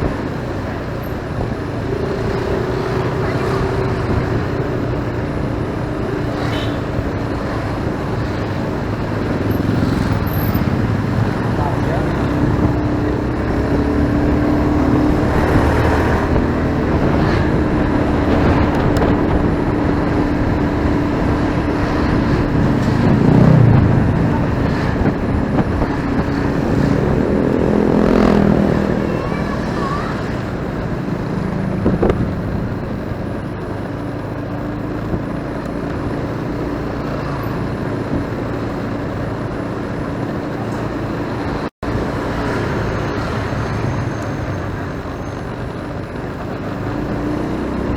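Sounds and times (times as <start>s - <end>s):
wind noise: 0.0s - 29.6s, 30.2s - 33.6s
motorcycle engine running: 0.0s - 47.9s
vehicles passing by: 0.0s - 47.9s.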